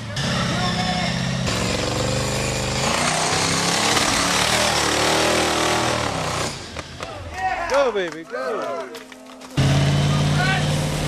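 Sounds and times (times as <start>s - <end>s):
engine roaring: 0.0s - 7.1s, 9.5s - 11.0s.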